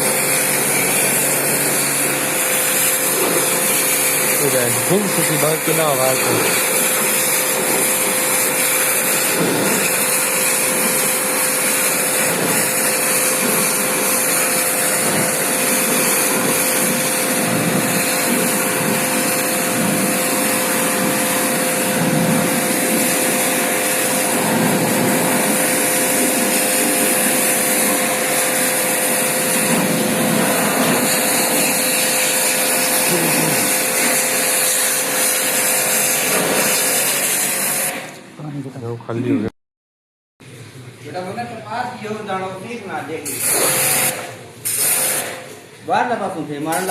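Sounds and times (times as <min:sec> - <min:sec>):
small electric motor whining: 0:00.0 - 0:30.2, 0:30.8 - 0:36.1
strong hiss: 0:00.0 - 0:34.5.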